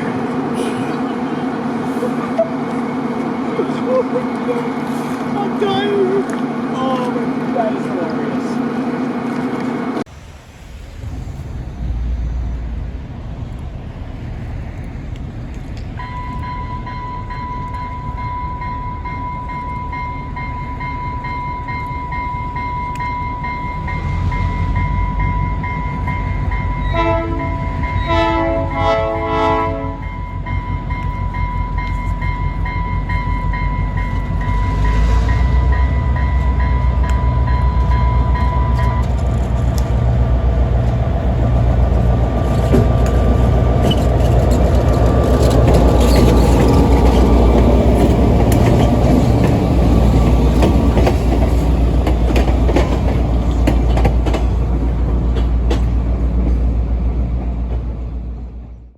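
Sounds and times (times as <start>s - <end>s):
diesel engine rumble: 0.0s - 18.2s, 21.6s - 58.9s
crossing warning bell ringing: 15.9s - 40.6s
locomotive horn blasts: 26.8s - 30.3s.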